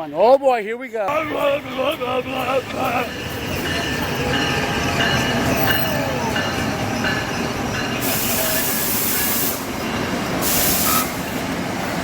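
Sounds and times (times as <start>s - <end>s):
train wheels rumbling on rails: 1.1s - 12.0s
high wheel squeal: 1.2s - 11.4s
sharp hiss: 8.0s - 11.4s.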